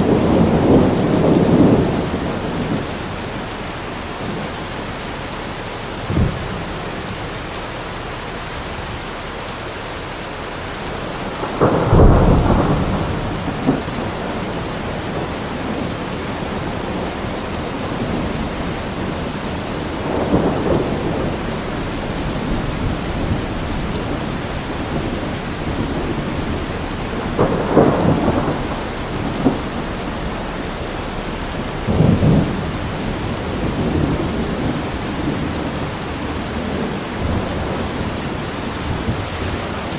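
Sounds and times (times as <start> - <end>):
thunder rumbling: 0.0 - 7.9, 10.3 - 39.9
steady rain falling: 0.0 - 39.9.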